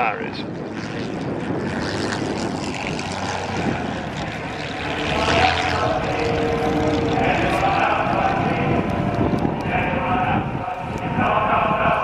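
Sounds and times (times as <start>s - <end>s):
aircraft engine running at low power: 0.0s - 12.0s.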